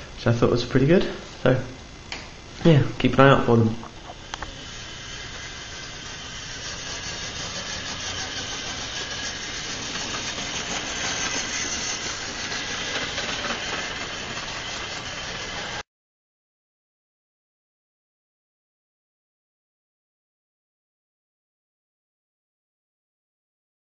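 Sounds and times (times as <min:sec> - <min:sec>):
model locomotive motor whirring: 0:03.9 - 0:15.8.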